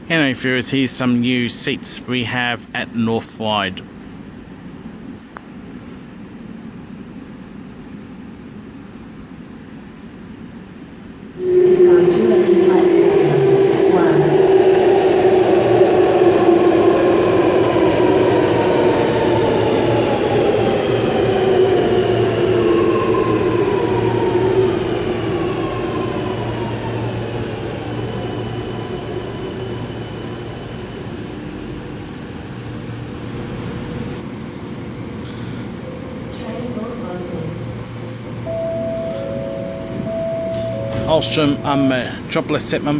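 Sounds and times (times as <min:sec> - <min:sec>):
train electric drive whine: 0:11.2 - 0:42.4
train braking: 0:11.4 - 0:34.2, 0:35.2 - 0:42.5.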